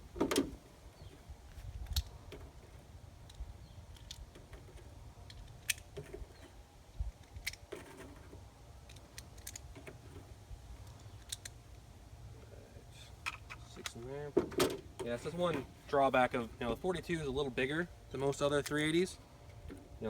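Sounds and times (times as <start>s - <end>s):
low wind rumble: 0.0s - 12.4s
clicks of handling a pistol: 1.6s - 2.2s, 3.3s - 4.4s, 5.3s - 6.5s, 7.2s - 7.8s, 8.8s - 9.7s, 10.8s - 11.6s.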